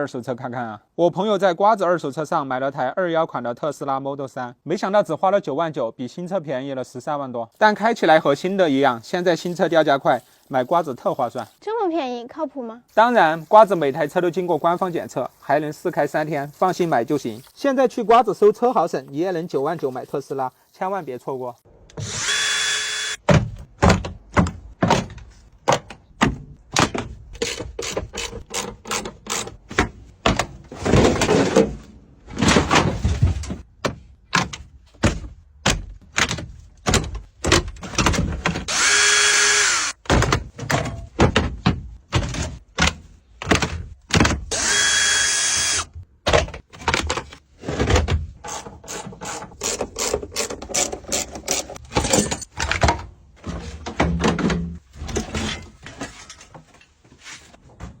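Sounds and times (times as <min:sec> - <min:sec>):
electric power tool whirring: 0:21.9 - 0:23.2, 0:38.7 - 0:40.0, 0:44.5 - 0:45.9
tools knocking and clanking: 0:40.0 - 0:44.4, 0:46.3 - 0:56.9.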